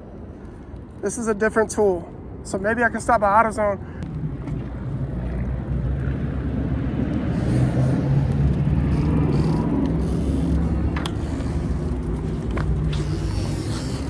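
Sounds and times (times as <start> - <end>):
street traffic: 0.0 - 14.0
vehicle engine rumbling: 3.9 - 14.0.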